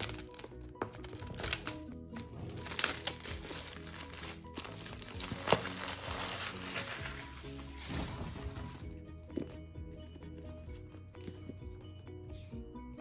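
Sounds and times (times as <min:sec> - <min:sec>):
packaging crinkling and rustling: 0:00.0 - 0:09.6
background music: 0:00.0 - 0:13.0.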